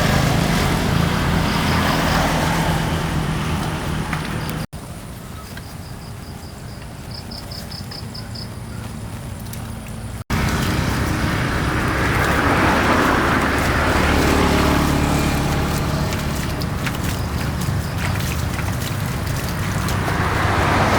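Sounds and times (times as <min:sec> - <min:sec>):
diesel engine running: 0:00.0 - 0:04.7, 0:10.0 - 0:20.9.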